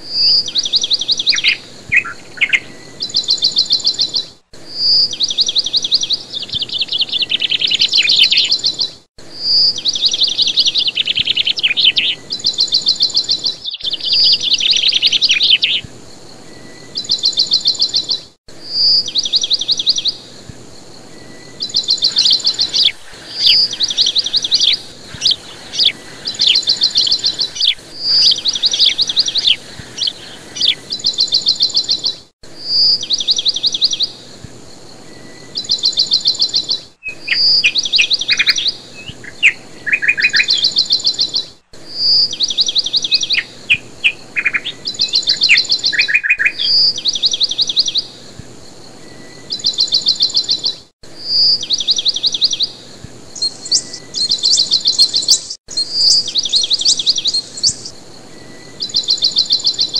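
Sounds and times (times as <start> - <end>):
bird whistling and trilling: 0.1 - 4.2, 4.8 - 15.8, 21.3 - 34.1, 35.6 - 48.1, 53.4 - 59.9.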